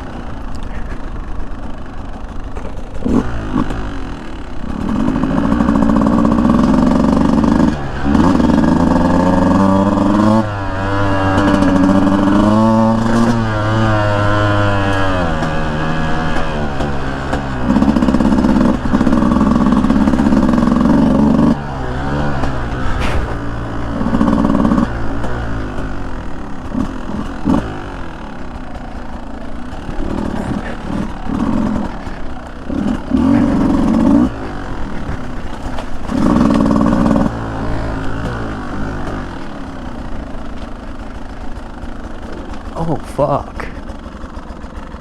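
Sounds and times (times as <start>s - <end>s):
dirt bike engine revving: 0.0s - 45.0s
sharp knocks: 22.3s - 26.0s.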